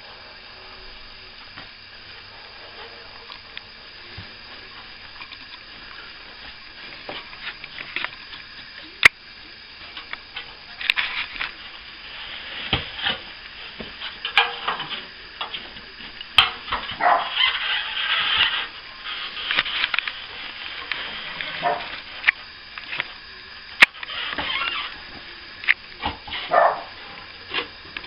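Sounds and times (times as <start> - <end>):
plastering tools scraping: 9.9 - 22.3.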